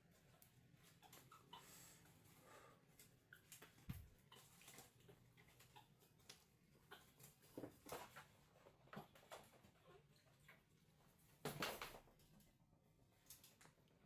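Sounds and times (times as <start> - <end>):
faint clicks and taps: 2.9 - 9.8.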